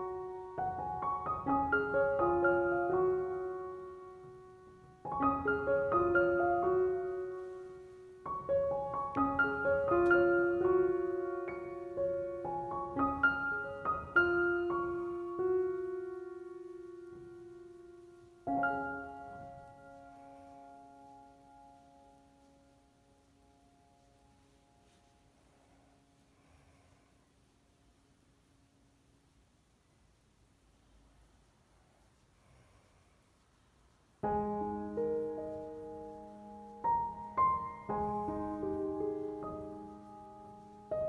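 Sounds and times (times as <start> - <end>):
slow solo piano music: 0.0 - 25.3, 34.2 - 41.0.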